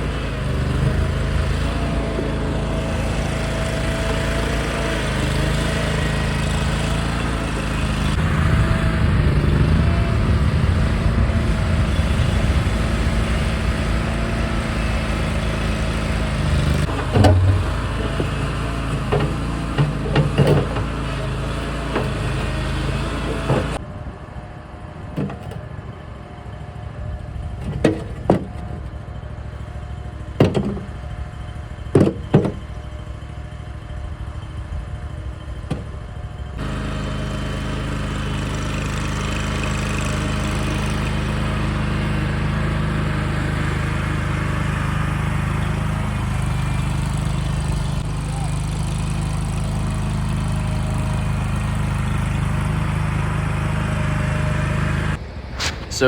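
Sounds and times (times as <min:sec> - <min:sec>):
compact loader engine running: 0:00.0 - 0:56.0
bucket knocking concrete chunks: 0:16.9 - 0:18.4.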